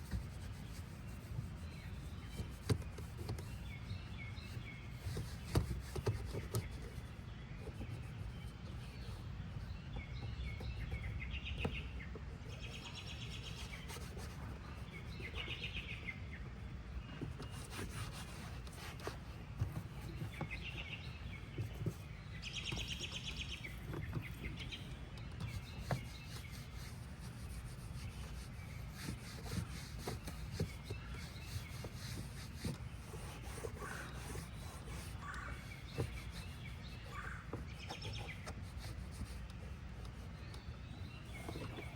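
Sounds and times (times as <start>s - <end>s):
birds chirping: 0.0s - 41.9s.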